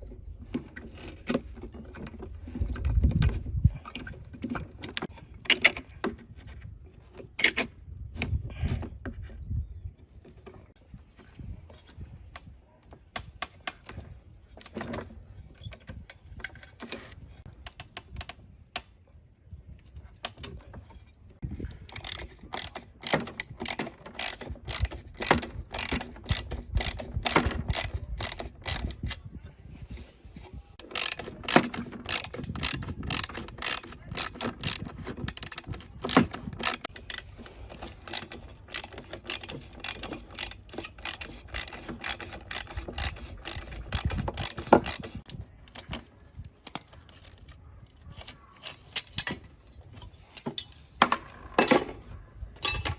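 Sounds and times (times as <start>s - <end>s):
ratchet wrench clicking: 21.9s - 29.0s, 30.8s - 45.3s.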